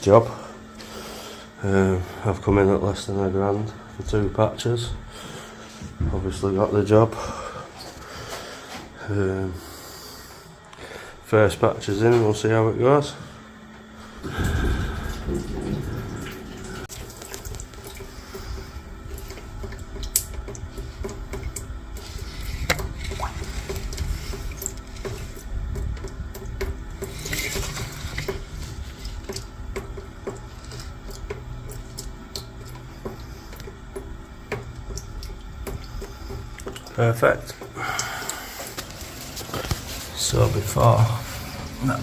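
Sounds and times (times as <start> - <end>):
low hum: 0.0 - 42.0
water splashing through pipe: 14.2 - 42.0.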